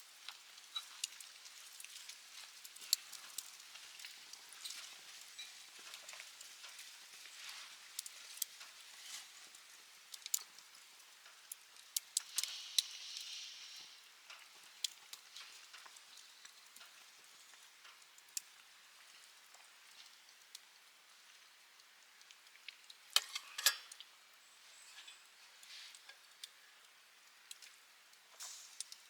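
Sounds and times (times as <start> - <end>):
campfire crackling and popping: 0.1 - 24.1, 25.9 - 29.0
fire hissing: 12.2 - 15.4, 28.3 - 29.0.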